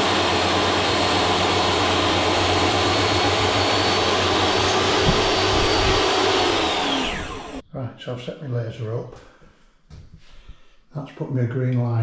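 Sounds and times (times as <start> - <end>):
electric motor whining: 0.0 - 7.6
rushing air: 2.2 - 7.6.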